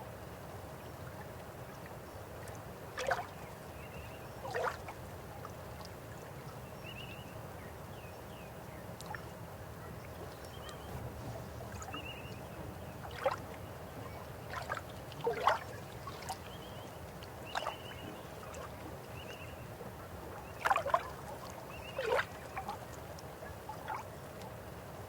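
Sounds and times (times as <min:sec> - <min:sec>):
stream flowing: 0:00.1 - 0:06.7, 0:08.6 - 0:25.0.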